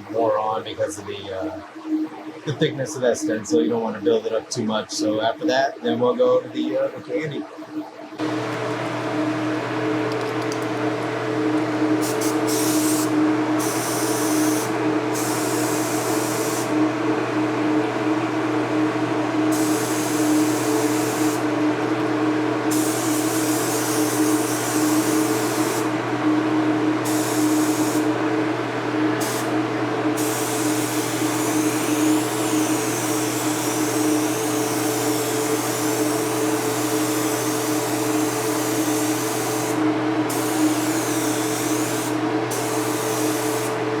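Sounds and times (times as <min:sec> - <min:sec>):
steady machine hum: 0:00.0 - 0:44.0
paint spray gun hissing: 0:12.0 - 0:16.8, 0:19.5 - 0:21.4, 0:22.7 - 0:25.9, 0:27.0 - 0:28.1, 0:29.2 - 0:29.6, 0:30.2 - 0:43.8.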